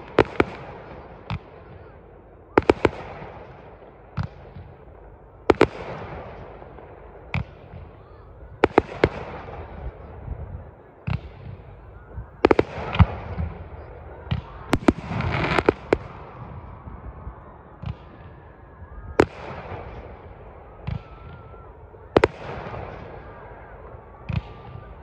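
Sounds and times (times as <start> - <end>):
fireworks crackle: 0.0 - 1.9, 11.1 - 18.5
fireworks banging: 11.0 - 16.8.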